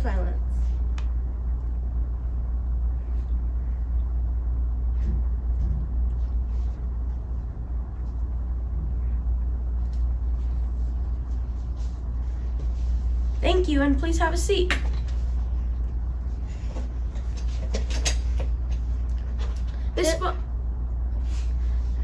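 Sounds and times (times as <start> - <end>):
low rumble of room tone: 0.0 - 22.0.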